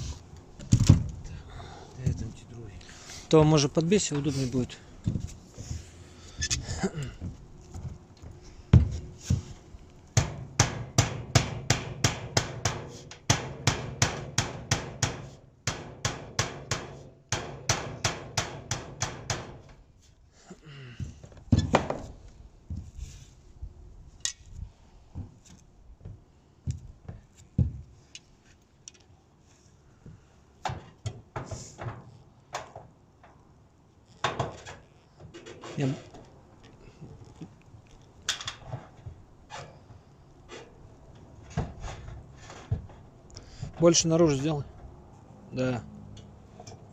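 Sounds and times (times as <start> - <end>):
hammer knocking on metal roof: 10.2 - 19.7.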